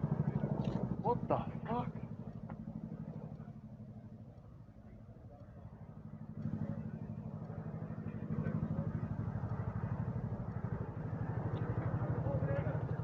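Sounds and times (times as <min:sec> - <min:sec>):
helicopter rotor blades beating: 0:05.2 - 0:13.0.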